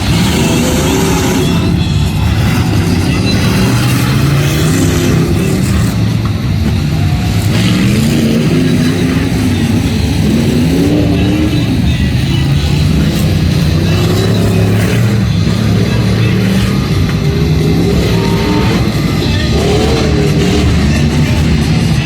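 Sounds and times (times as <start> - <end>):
vehicle engines revving: 0.0 - 22.0.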